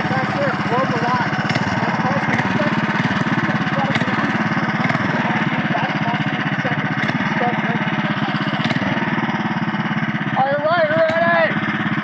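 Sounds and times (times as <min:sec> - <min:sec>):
small engine idling: 0:00.0 - 0:12.0.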